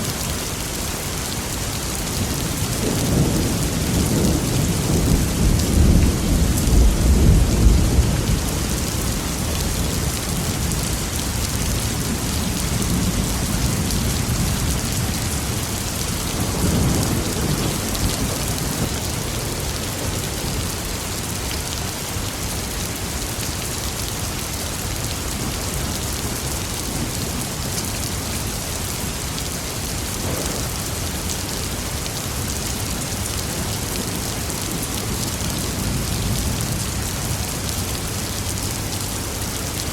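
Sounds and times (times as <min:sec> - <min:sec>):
heavy rain: 0:00.0 - 0:39.9
thunder rumbling: 0:02.2 - 0:21.0.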